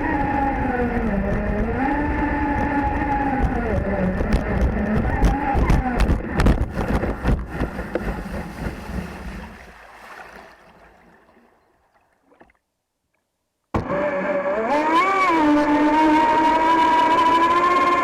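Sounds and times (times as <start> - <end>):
whining tone: 0.0 - 7.0, 13.8 - 18.0
wind noise: 0.0 - 9.7
rushing water: 6.7 - 12.6.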